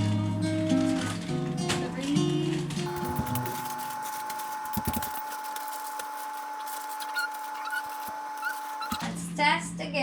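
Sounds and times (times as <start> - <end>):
plastic bags handled and knocking: 2.9 - 9.0.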